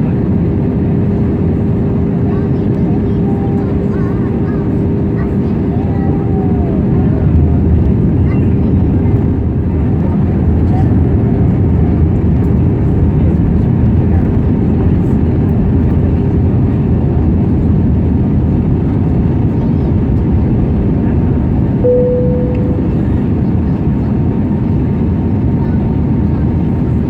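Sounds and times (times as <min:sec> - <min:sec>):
airplane cabin noise: 0:00.0 - 0:27.0
single tone: 0:21.9 - 0:23.6.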